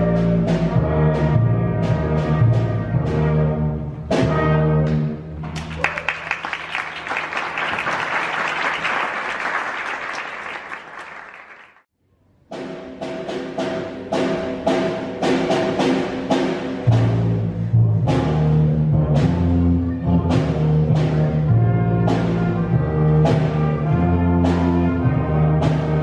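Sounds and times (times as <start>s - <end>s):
concert band brass chords: 0.0s - 5.4s, 13.1s - 26.0s
audience applauding: 5.5s - 11.9s.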